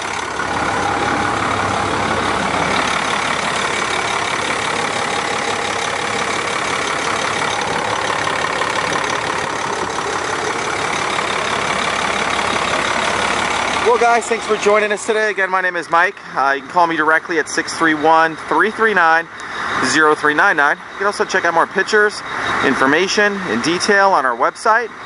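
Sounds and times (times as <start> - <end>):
diesel engine idling: 0.0 - 25.0.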